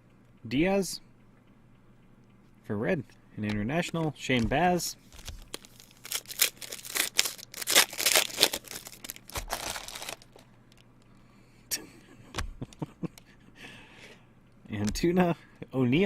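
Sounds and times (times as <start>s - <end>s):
foil wrapper crinkling and tearing: 5.1s - 10.8s.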